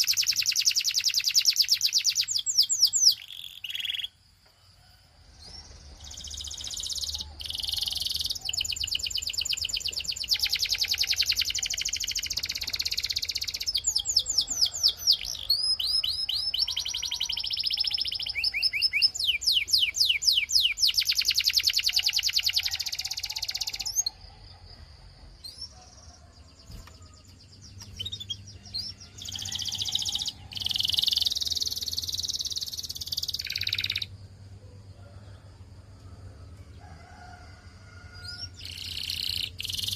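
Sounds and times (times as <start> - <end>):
canary singing trills: 0.0 - 4.2, 5.4 - 24.8, 25.4 - 34.2, 38.1 - 39.9.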